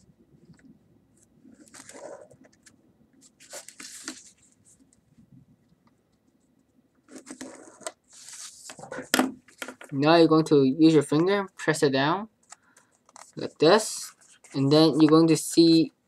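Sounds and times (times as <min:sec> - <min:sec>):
paper being handled: 0:01.5 - 0:04.8, 0:07.1 - 0:09.1.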